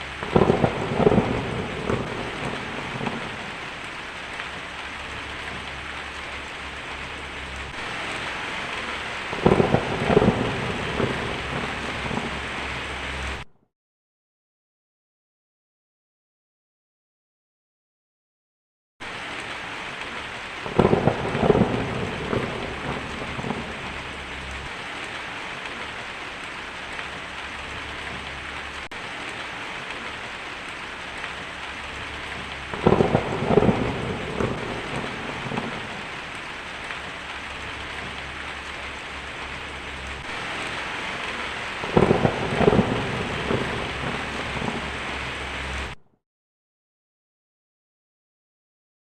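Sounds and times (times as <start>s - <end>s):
steady rain falling: 0.0s - 13.5s, 19.0s - 46.0s
thunderclaps: 0.0s - 13.5s, 20.6s - 25.9s, 27.8s - 46.0s.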